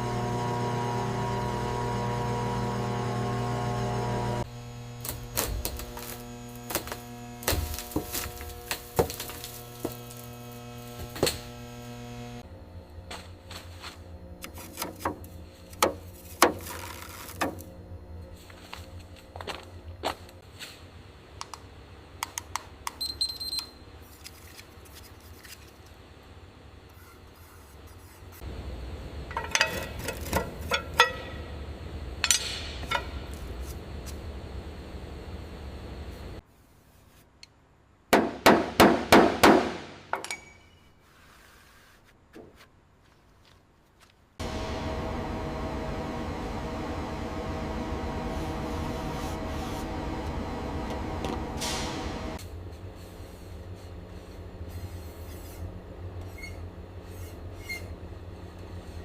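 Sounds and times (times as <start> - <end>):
steady hum: 0.0 - 16.2, 28.4 - 36.4, 44.4 - 56.9
low steady hum: 44.4 - 57.0.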